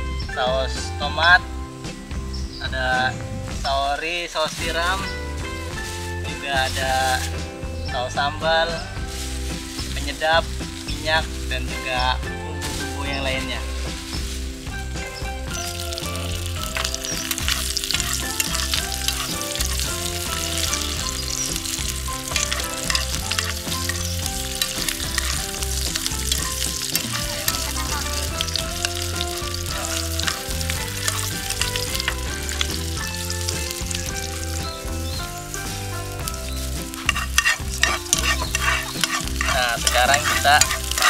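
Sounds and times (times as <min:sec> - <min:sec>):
music: 0:00.0 - 0:41.0
sausages sizzling in a pan: 0:00.0 - 0:41.0
spoon stirring in a pan: 0:15.6 - 0:34.9, 0:35.6 - 0:41.0.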